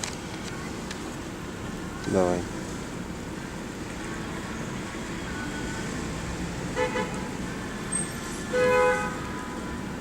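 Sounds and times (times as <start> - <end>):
low vehicle noise: 0.0 - 10.0
car horn beeping: 6.7 - 7.4, 8.5 - 9.4.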